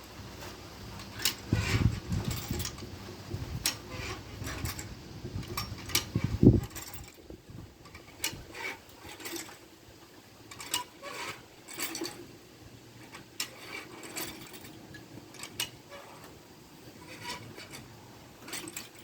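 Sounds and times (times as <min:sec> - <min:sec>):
metallic clicks and knocks: 0:10.5 - 0:12.3, 0:13.0 - 0:16.4, 0:17.0 - 0:19.0.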